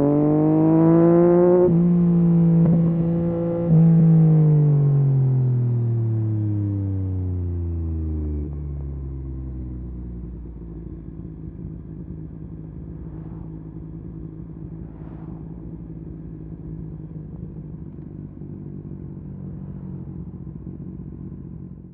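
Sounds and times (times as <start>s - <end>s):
motorcycle engine idling: 8.5s - 21.9s.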